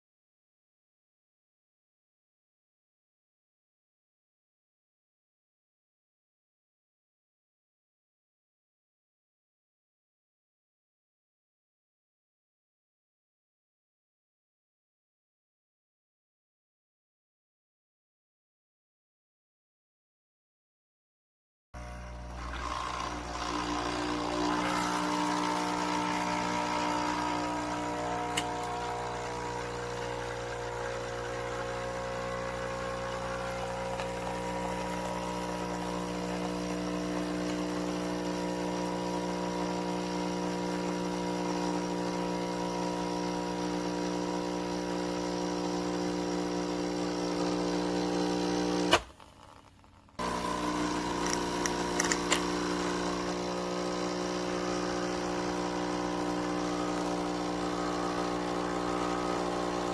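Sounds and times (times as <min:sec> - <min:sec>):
water pump humming: 0:21.8 - 0:49.4, 0:50.2 - 0:59.9.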